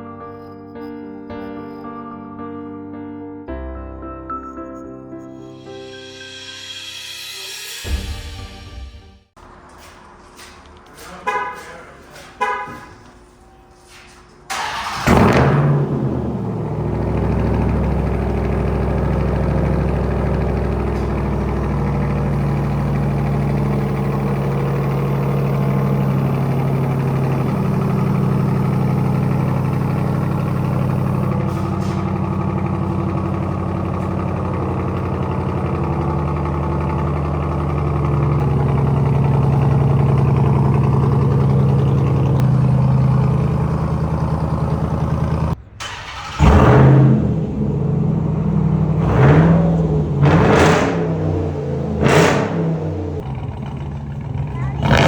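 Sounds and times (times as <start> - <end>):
car engine idling: 14.5 - 55.0.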